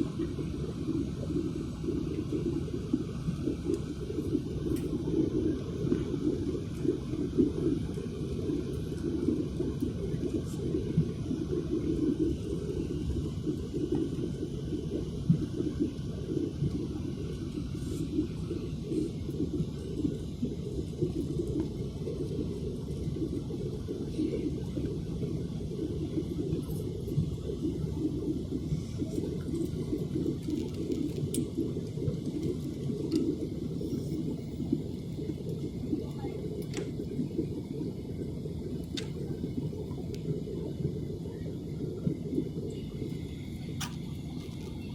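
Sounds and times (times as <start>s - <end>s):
jet engines rumbling: 0.0s - 44.9s
airliner cabin rumble: 38.7s - 44.9s.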